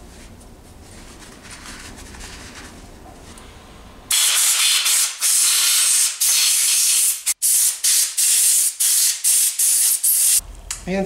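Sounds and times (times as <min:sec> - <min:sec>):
spray can hissing: 0:04.1 - 0:10.4.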